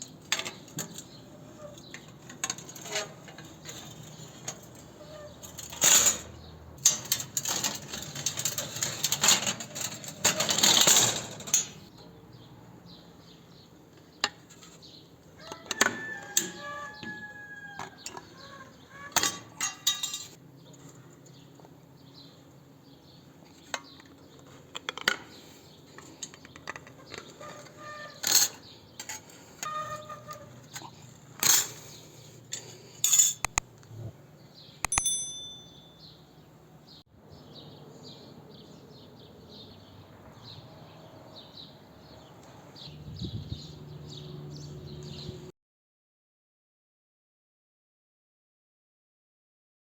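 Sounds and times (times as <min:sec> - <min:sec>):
metal tools clinking: 0:19.6 - 0:20.4, 0:33.0 - 0:33.6, 0:34.9 - 0:36.0.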